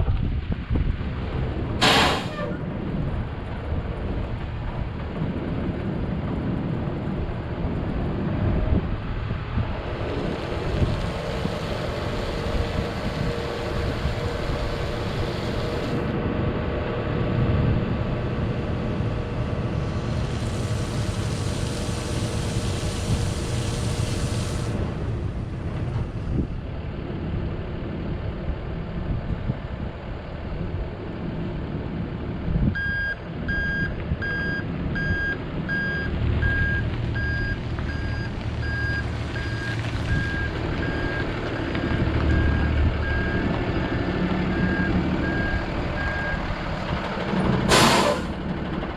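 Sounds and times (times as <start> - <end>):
truck engine running: 0.8 - 29.2, 33.2 - 48.9
hiss: 1.8 - 2.6, 19.8 - 25.0, 47.7 - 48.4.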